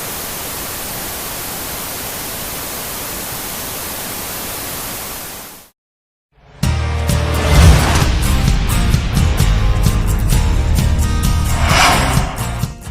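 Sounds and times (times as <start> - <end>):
static hiss: 0.0 - 5.7
music: 6.4 - 12.9.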